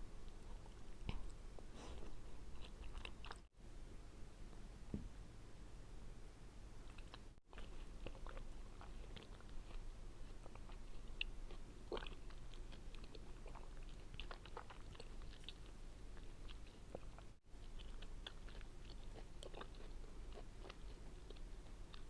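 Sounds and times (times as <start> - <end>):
chewing tangerine segments: 6.8 - 22.0.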